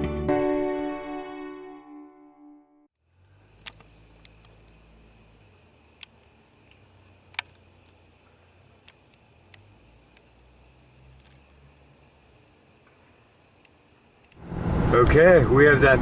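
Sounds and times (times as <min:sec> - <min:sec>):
faint low hum: 0:03.0 - 0:15.7
sharp clicks: 0:03.6 - 0:04.8, 0:06.0 - 0:10.3.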